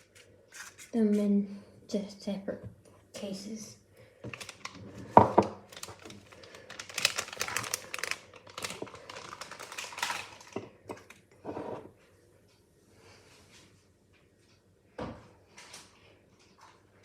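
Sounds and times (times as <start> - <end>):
paper cases crinkling and utensils tapping: 4.3 - 11.1.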